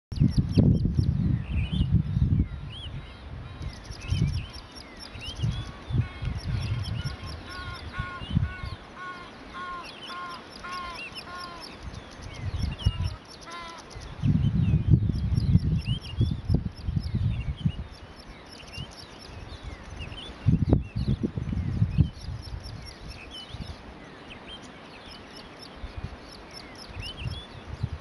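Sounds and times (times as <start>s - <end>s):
low rumbles on microphone: 0.1s - 3.2s, 14.2s - 17.9s, 19.8s - 22.9s
songbirds chirping and whistling: 0.1s - 28.0s.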